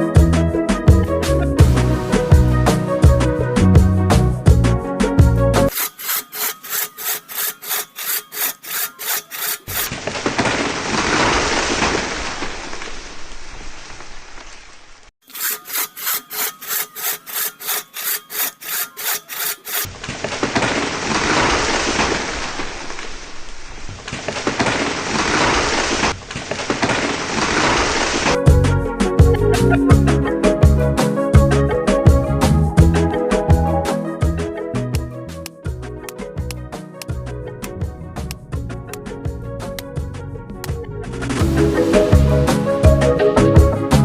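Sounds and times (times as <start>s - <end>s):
wood being sawn: 5.7s - 9.9s, 15.2s - 19.9s.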